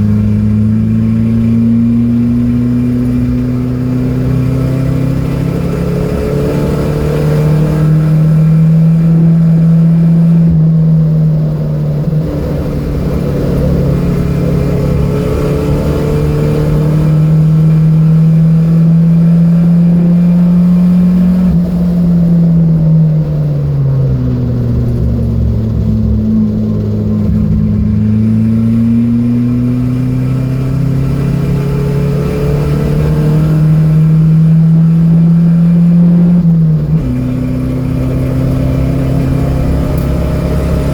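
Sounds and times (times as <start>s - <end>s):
car engine running hard: 0.0s - 40.9s.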